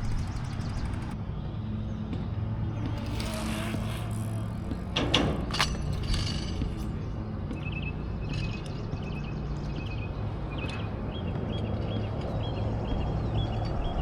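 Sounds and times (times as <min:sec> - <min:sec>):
tyres rumbling: 0:00.0 - 0:01.2, 0:02.5 - 0:07.6.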